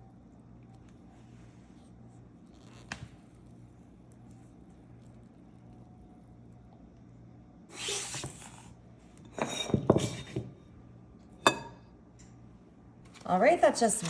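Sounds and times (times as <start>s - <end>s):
dishes scraping: 9.2s - 10.7s, 11.4s - 11.8s
dishes knocking and clinking: 9.3s - 10.6s, 11.4s - 11.8s.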